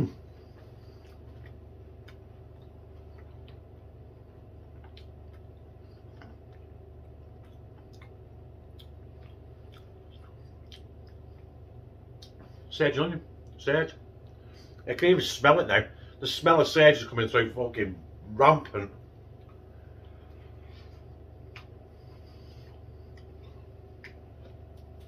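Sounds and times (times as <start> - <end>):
low steady hum: 0.0 - 25.0
man chewing with wet clicks: 0.1 - 12.6, 19.0 - 25.0.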